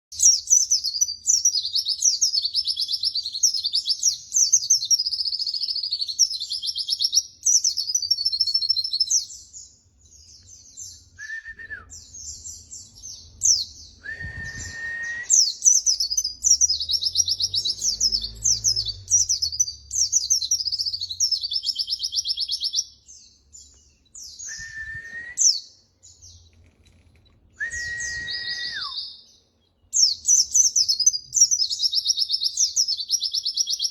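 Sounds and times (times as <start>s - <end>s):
bird twittering song: 0.1s - 33.9s
bird whistle dropping in pitch: 14.0s - 15.5s, 24.3s - 25.6s, 27.6s - 29.2s.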